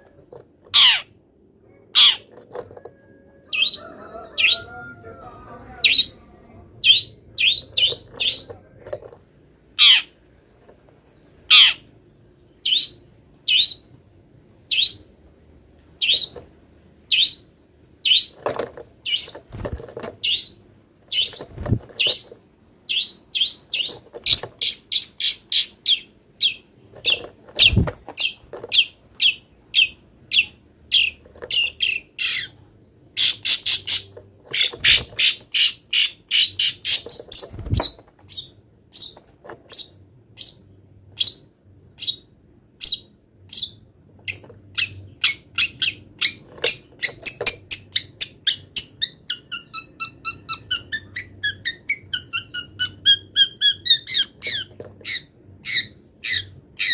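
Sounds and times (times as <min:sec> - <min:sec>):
shrike singing: 0:03.0 - 0:09.0.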